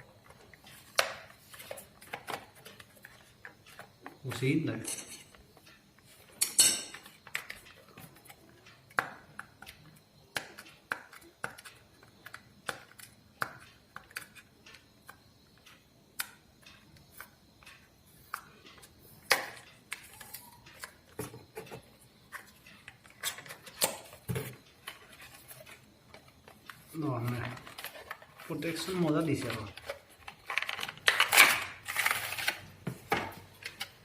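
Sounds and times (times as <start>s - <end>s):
packaging clicks and knocks: 19.2s - 34.0s.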